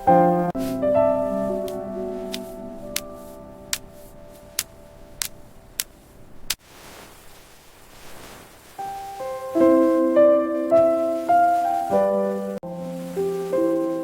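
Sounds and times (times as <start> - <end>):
gentle piano music: 0.0 - 6.5, 8.8 - 14.0
faint hiss: 0.0 - 14.0.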